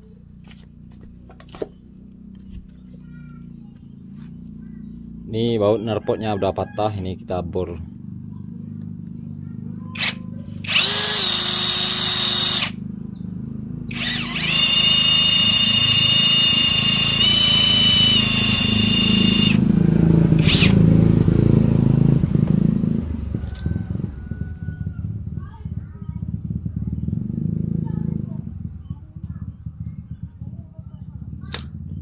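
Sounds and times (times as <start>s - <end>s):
electric drill boring: 9.9s - 12.8s, 13.9s - 19.6s, 20.4s - 20.8s.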